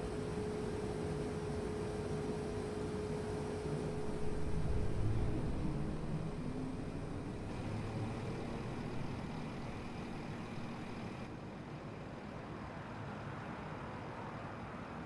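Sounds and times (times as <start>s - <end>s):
train rumble and hiss: 0.0s - 15.0s
low hum: 3.5s - 11.3s.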